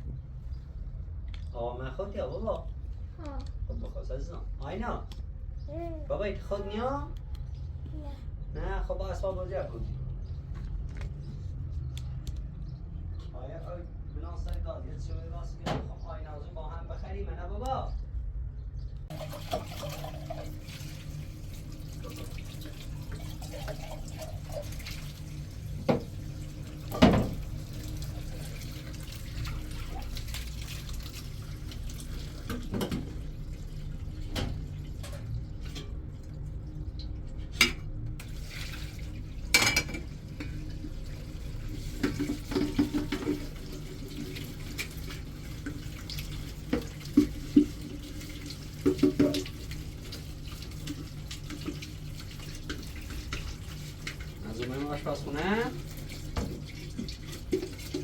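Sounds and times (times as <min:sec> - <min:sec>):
tap water running into sink: 0:19.1 - 0:58.0.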